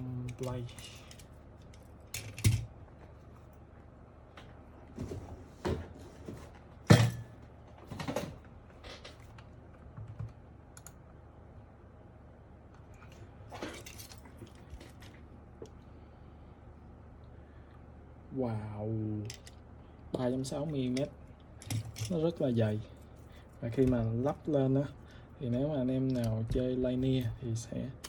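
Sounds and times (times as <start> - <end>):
keyboard parts clicking and knocking: 9.9 - 10.9.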